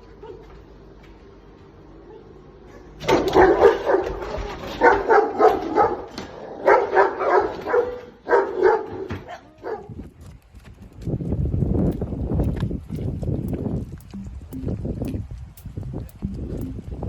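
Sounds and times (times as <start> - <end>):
dog barking: 2.1 - 9.9.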